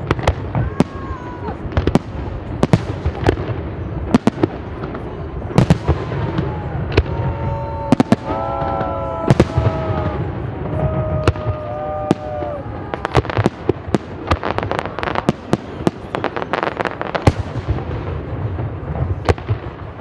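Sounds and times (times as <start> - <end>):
fireworks bangs and crackles: 0.0 - 20.0
people shouting: 0.5 - 1.6, 5.6 - 13.4.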